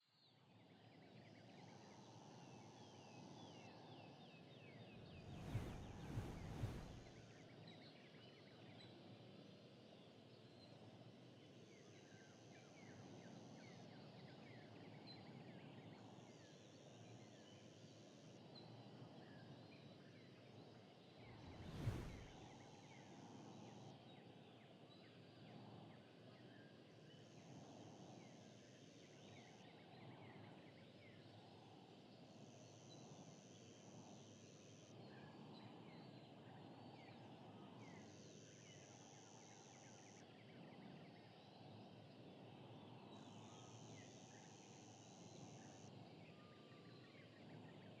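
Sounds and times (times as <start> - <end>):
low steady rumble: 5.1 - 7.1, 21.3 - 22.4.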